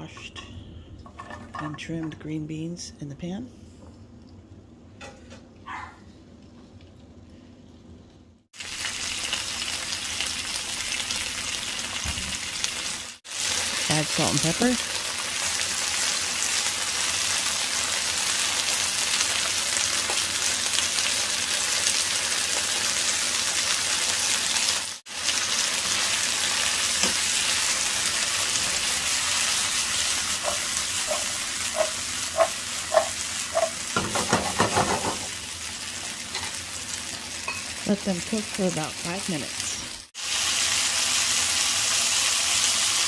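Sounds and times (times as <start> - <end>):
beans sizzling in a frying pan: 8.6 - 43.0.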